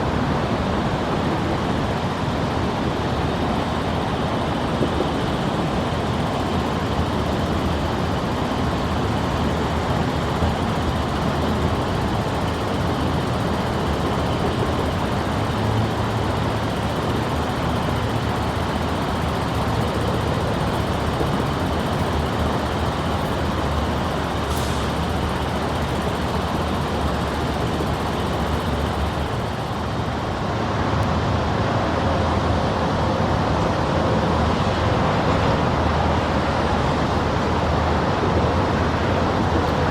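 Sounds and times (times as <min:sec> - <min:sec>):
passing vehicles rumbling: 0:04.3 - 0:32.4.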